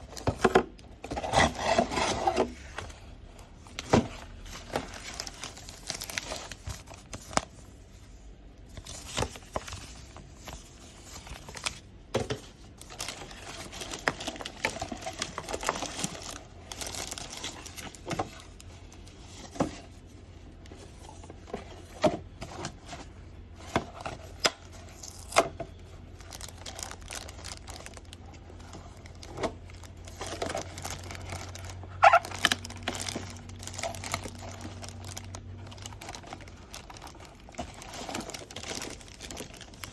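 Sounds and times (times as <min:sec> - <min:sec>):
packaging crinkling and tearing: 0:00.0 - 0:07.7, 0:12.6 - 0:19.6, 0:24.0 - 0:39.9.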